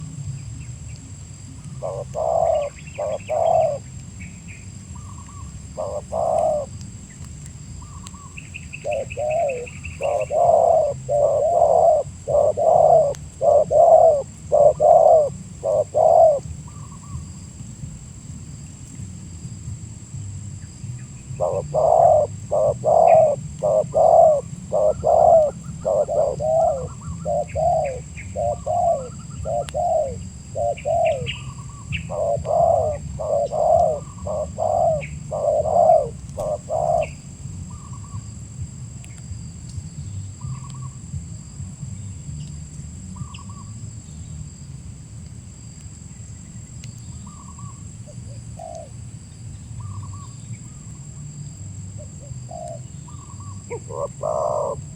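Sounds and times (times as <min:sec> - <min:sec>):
dove cooing: 0:01.5 - 0:04.0, 0:05.0 - 0:06.8, 0:07.8 - 0:17.4, 0:21.2 - 0:38.2, 0:47.2 - 0:49.0, 0:52.0 - 0:54.9
faint bird chirps: 0:01.5 - 0:17.4, 0:21.0 - 0:38.3, 0:39.9 - 0:41.0, 0:43.1 - 0:44.4, 0:46.2 - 0:48.9, 0:49.6 - 0:50.9, 0:52.0 - 0:54.9.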